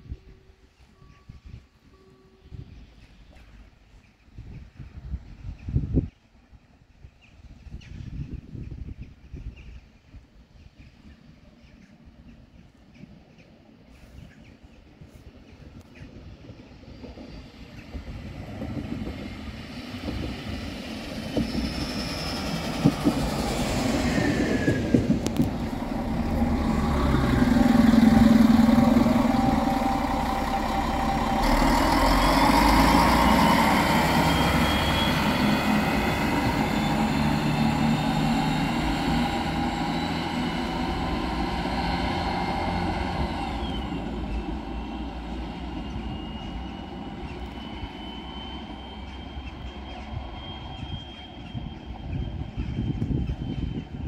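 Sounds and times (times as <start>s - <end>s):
train wheels rumbling on rails: 2.5s - 54.0s
high-pitched squealing: 21.0s - 54.0s.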